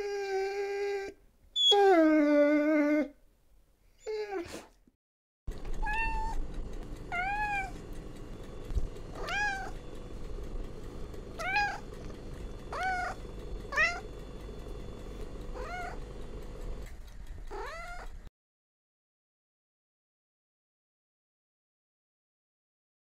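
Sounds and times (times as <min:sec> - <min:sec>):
low background hum: 0:05.5 - 0:18.3
cat meowing: 0:05.8 - 0:06.4, 0:07.1 - 0:07.8, 0:09.2 - 0:09.8, 0:11.4 - 0:11.9, 0:12.7 - 0:14.1, 0:15.6 - 0:16.0, 0:17.5 - 0:18.1.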